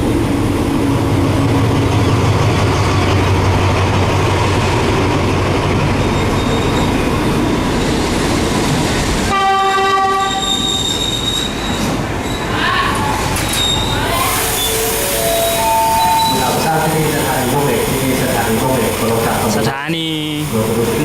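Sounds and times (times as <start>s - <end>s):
train rumbling: 0.0s - 21.0s
train horn: 9.3s - 10.6s, 14.1s - 16.4s.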